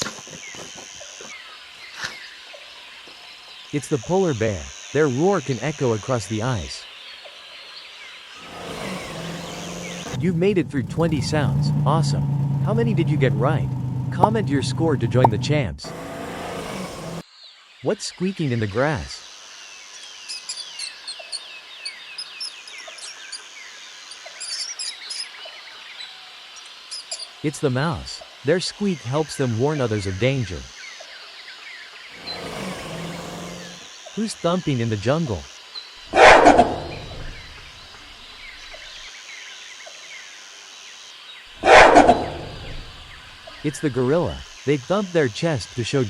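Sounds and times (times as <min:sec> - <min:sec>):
faint chirps: 0:17.8 - 0:46.0.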